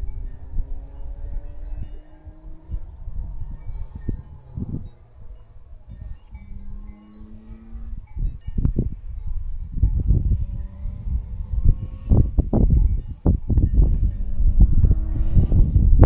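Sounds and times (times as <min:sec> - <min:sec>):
high-pitched insect trill: 0:00.0 - 0:16.0
wind buffeting microphone: 0:00.0 - 0:16.0.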